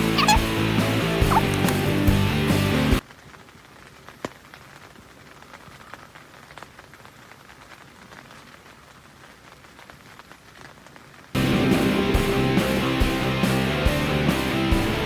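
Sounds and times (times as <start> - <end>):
light rain pattering: 1.1 - 11.4.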